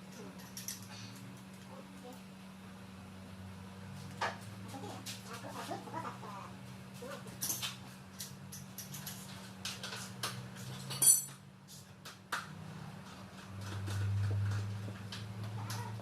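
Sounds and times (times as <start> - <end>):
metal tools clinking and tapping: 0.4 - 0.9, 7.4 - 11.9.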